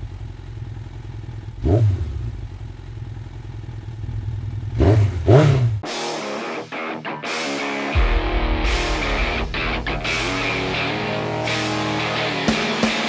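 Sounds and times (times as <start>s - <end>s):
motorcycle engine idling: 0.0s - 5.8s
motorcycle engine revving: 0.0s - 6.0s, 8.0s - 13.0s.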